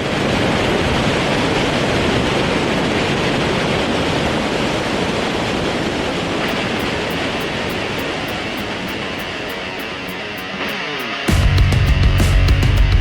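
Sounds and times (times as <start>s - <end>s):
wind rushing over microphone: 0.0s - 10.1s.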